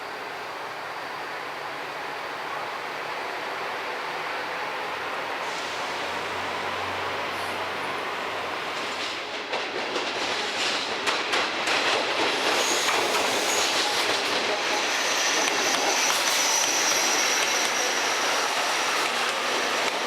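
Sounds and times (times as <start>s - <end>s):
train running on rails: 0.0s - 20.0s
high wheel squeal: 12.6s - 19.9s.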